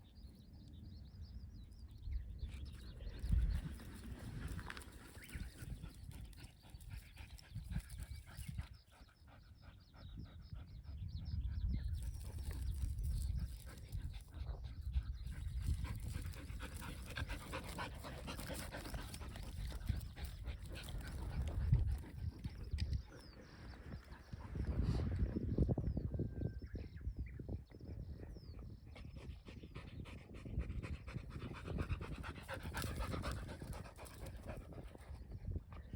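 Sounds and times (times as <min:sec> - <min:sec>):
dog panting: 0:15.3 - 0:22.6, 0:29.4 - 0:35.2.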